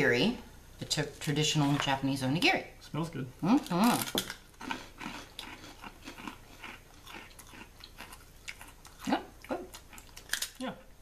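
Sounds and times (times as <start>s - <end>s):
people chewing crisp crackers: 3.5s - 10.7s.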